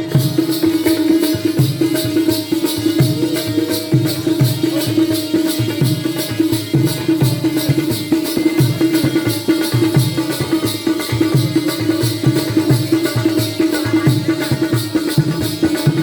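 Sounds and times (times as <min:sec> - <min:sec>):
drum beating driving rhythm: 0:00.0 - 0:16.0
small hand cymbals striking: 0:00.0 - 0:16.0.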